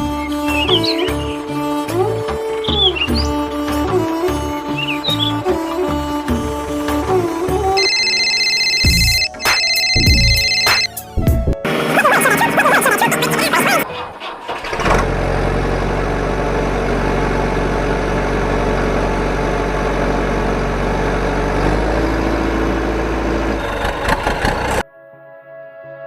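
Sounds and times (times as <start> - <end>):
tractor engine idling: 13.3 - 24.8.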